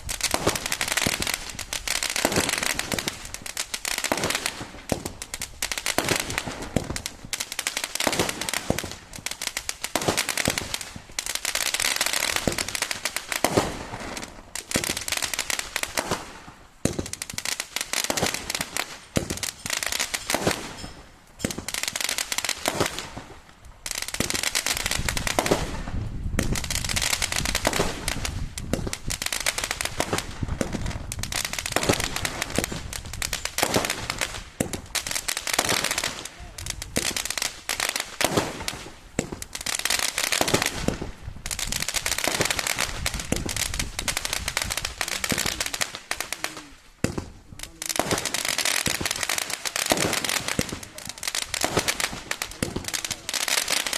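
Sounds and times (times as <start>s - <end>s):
fireworks popping and crackling: 0.0s - 53.9s.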